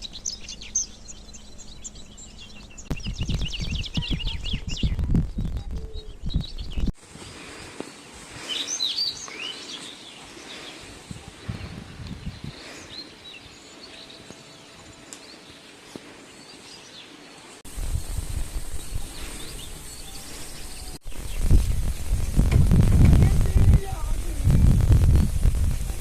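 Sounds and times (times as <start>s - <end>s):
outdoor background noise: 0.0s - 26.0s
small birds chirping: 0.0s - 26.0s
loud low rumbling: 17.7s - 26.0s.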